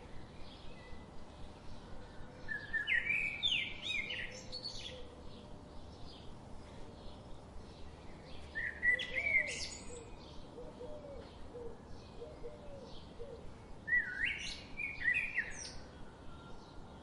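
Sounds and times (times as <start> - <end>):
bird whistled song phrases: 13.9 - 15.8.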